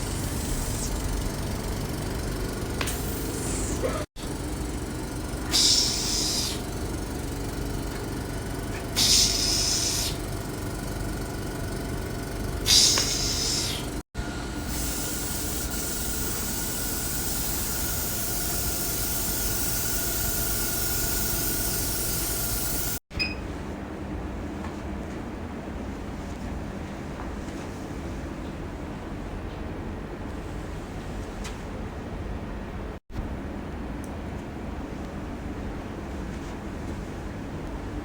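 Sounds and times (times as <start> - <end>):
steady machine hum: 0.0 - 23.0
spraying hiss: 5.5 - 6.6, 9.0 - 10.2, 12.7 - 13.9.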